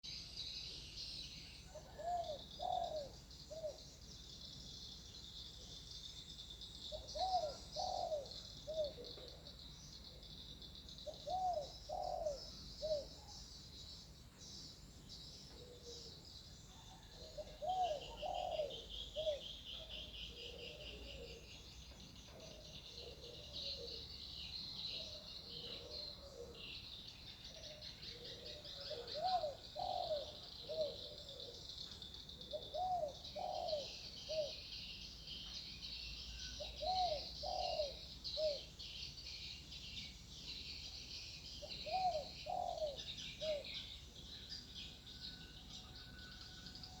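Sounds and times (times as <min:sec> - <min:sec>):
dove cooing: 0:01.7 - 0:03.8, 0:06.9 - 0:09.5, 0:11.0 - 0:13.3, 0:15.5 - 0:16.2, 0:16.8 - 0:21.5, 0:22.3 - 0:24.2, 0:24.8 - 0:26.8, 0:27.4 - 0:31.7, 0:32.3 - 0:34.7, 0:36.6 - 0:38.7, 0:41.6 - 0:43.9.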